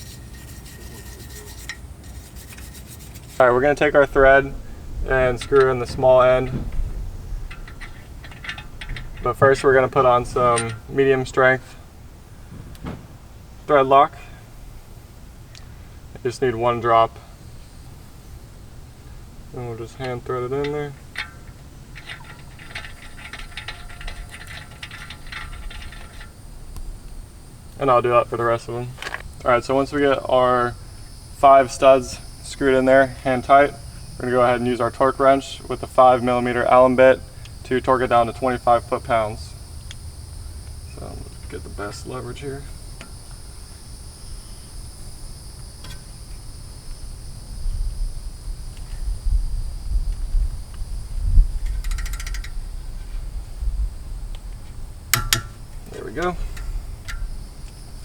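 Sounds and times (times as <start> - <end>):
low rumble: 3.5 - 15.4
metal stud threading clicks: 7.4 - 10.9, 20.0 - 26.4, 51.6 - 52.6, 55.1 - 57.8.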